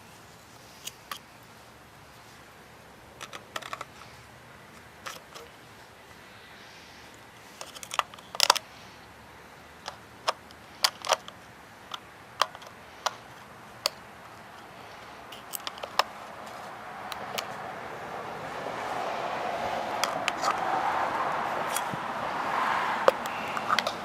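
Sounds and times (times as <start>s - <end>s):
sharp metallic clicks and knocks: 15.3s - 17.6s, 19.9s - 20.7s.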